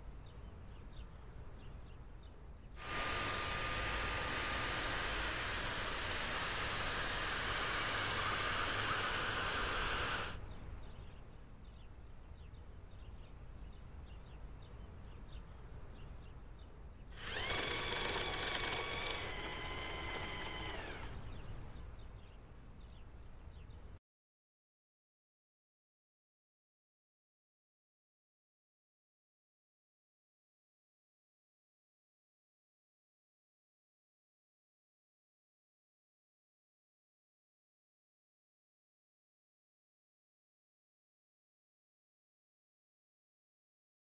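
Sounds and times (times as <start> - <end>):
robot vacuum motor running: 2.8 - 10.4, 17.2 - 21.6.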